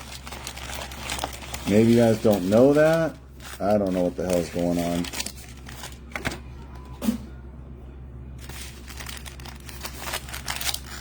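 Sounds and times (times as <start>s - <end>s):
wrappers crinkling: 0.0s - 6.1s, 8.4s - 11.0s
steady low hum: 0.0s - 11.0s
cards being handled: 8.4s - 11.0s.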